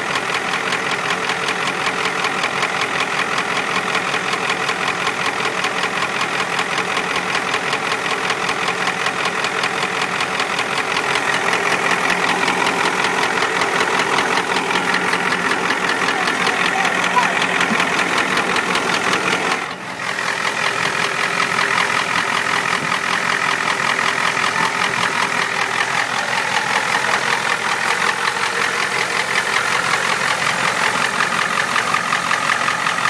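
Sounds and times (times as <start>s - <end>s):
diesel engine knocking: 0.0s - 33.0s.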